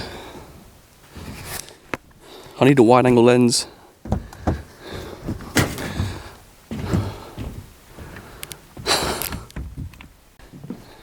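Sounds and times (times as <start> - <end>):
knocks scuffs and crunches: 4.1 - 7.7.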